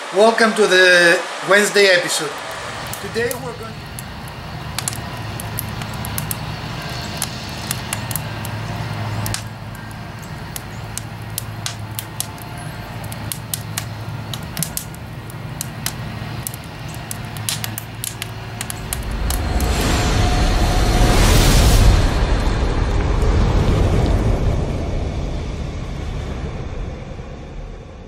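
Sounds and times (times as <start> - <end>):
low steady hum: 2.2 - 28.0
wood fire crackling and popping: 2.3 - 24.2.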